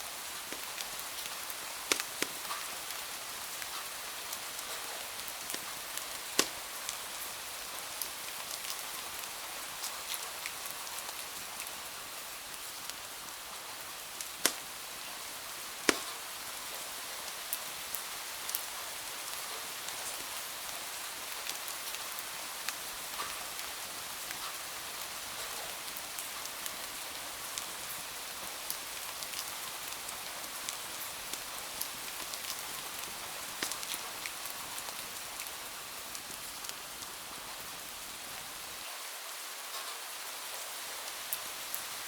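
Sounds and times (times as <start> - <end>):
rain hiss: 0.0 - 42.0
wood fire crackling and popping: 0.4 - 7.3, 14.0 - 17.6, 28.7 - 37.2.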